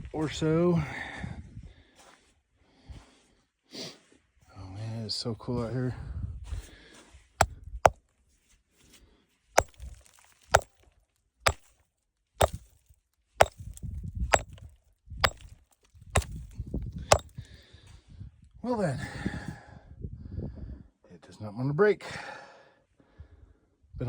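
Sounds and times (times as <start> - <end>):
rock being struck: 9.6 - 10.8, 11.5 - 11.7, 12.4 - 12.6, 13.4 - 15.6, 16.2 - 17.3.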